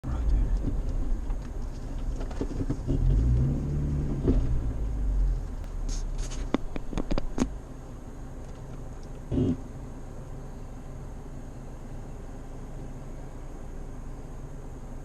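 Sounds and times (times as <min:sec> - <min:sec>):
car engine revving: 0:00.1 - 0:07.6, 0:09.2 - 0:09.8.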